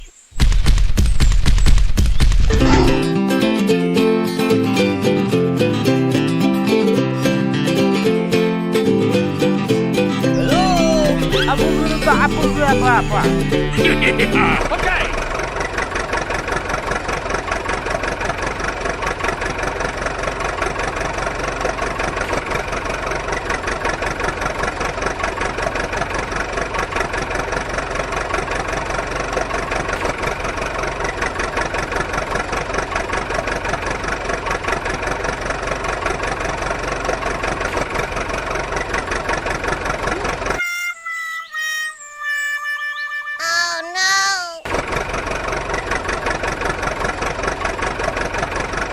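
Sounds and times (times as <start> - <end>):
small engine idling: 2.7 - 40.6, 44.7 - 48.9.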